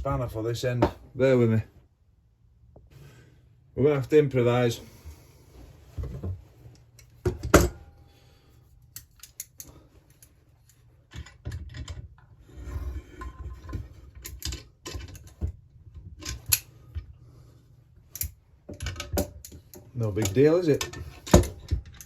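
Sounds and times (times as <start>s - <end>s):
metal tools clinking and rattling: 9.0s - 12.3s, 13.2s - 16.7s, 18.1s - 22.0s.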